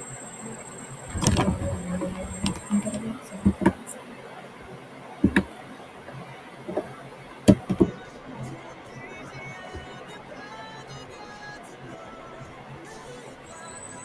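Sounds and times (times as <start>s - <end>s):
sharp knocks and clicks: 5.2s - 5.5s, 7.5s - 8.0s.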